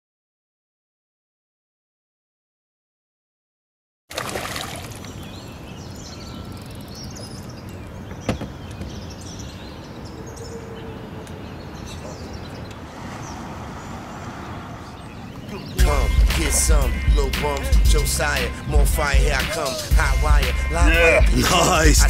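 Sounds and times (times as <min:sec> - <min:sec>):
small birds chirping: 0:04.2 - 0:20.5.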